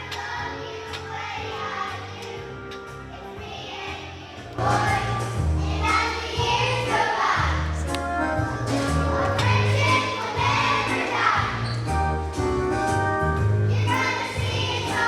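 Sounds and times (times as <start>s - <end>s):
group of voices singing: 3.2s - 12.0s, 13.7s - 15.0s.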